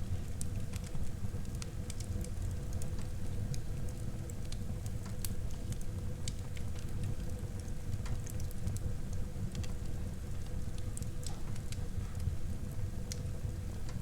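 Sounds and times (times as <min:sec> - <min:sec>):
low rumble of burning: 0:00.0 - 0:14.0
wood fire crackling and popping: 0:00.1 - 0:14.0.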